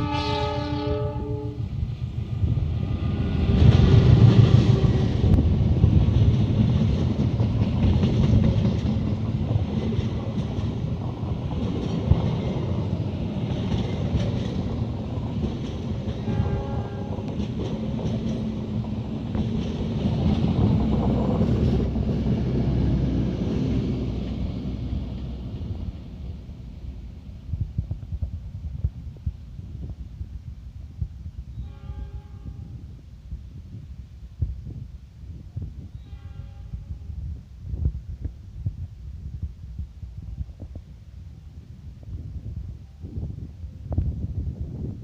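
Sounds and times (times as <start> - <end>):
distant horn: 0.0 - 1.7, 16.2 - 17.3, 31.6 - 32.8, 36.0 - 37.1
train rumbling on rails: 0.0 - 45.0.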